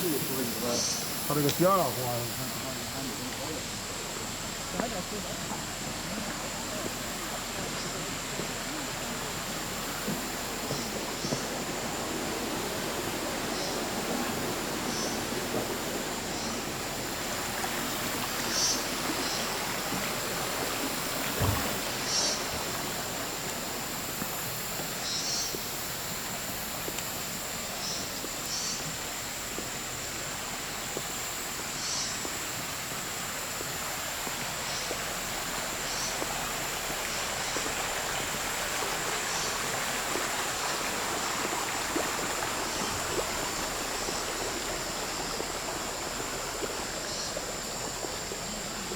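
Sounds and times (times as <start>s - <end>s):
stream water running: 0.0s - 48.9s
low thump: 21.4s - 21.8s.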